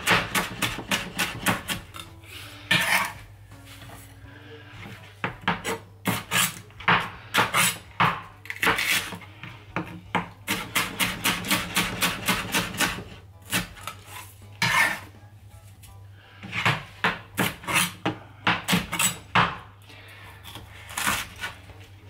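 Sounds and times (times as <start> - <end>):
knife chopping on cutting board: 0.0 - 2.1, 5.2 - 15.0, 16.4 - 19.7, 20.5 - 21.6.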